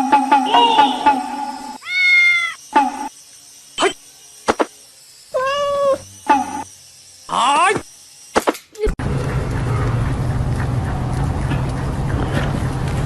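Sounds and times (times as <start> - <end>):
cat meowing: 1.8 - 2.6, 5.4 - 6.0.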